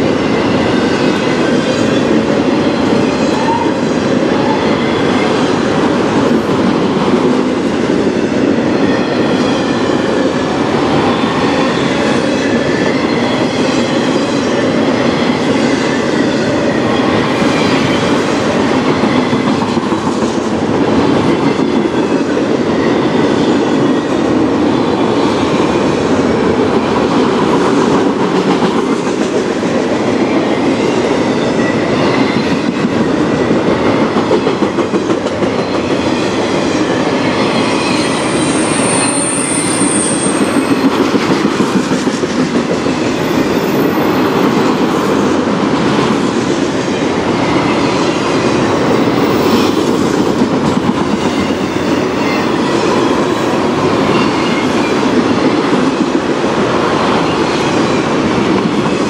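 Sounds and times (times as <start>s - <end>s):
steel wheels on rails: 0.0s - 59.0s
high-pitched wheel squeals: 37.4s - 40.9s, 51.2s - 55.1s.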